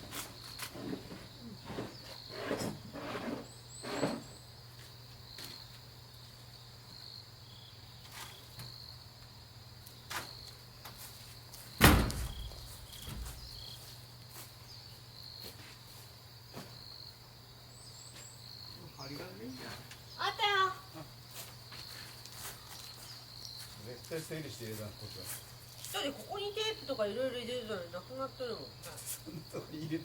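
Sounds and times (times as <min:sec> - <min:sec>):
crickets chirping: 0:00.0 - 0:30.0
loud thump: 0:11.8 - 0:13.6.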